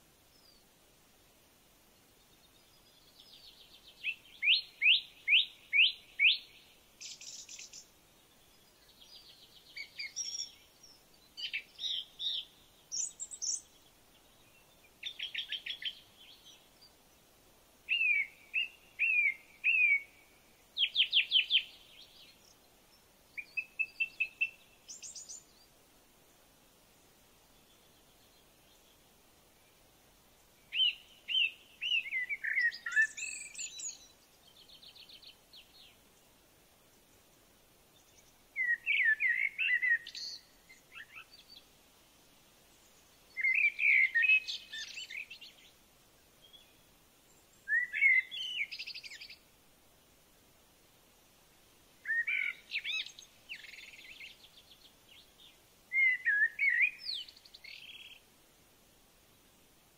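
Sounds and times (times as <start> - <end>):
songbird warbling: 4.0 - 7.9, 17.9 - 20.2, 23.4 - 25.5, 30.7 - 35.9, 38.0 - 41.6, 42.8 - 45.7, 47.6 - 49.4, 52.0 - 58.2.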